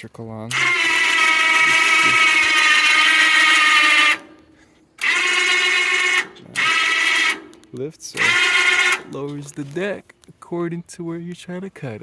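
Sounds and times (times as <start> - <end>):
electric motor whining: 0.5 - 4.4, 5.0 - 9.2.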